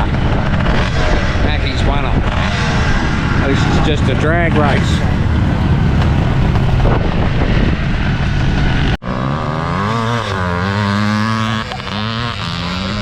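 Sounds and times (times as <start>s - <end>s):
loud low rumbling: 0.0s - 9.9s
motorcycle engine revving: 0.0s - 13.0s.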